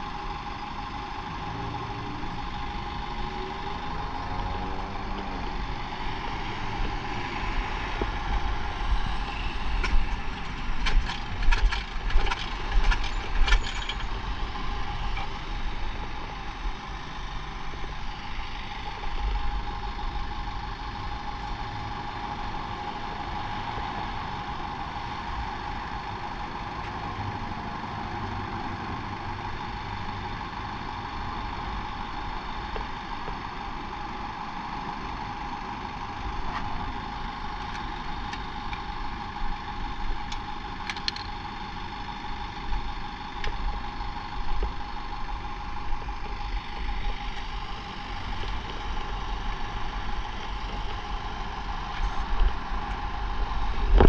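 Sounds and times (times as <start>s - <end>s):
motorcycle engine idling: 9.9s - 54.0s.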